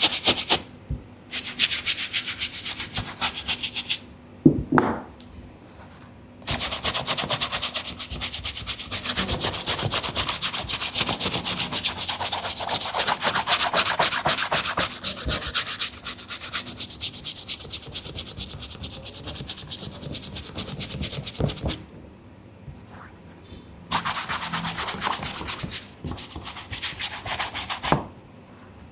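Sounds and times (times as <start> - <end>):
brush scrubbing a sneaker: 6.5 - 21.8, 23.9 - 28.0.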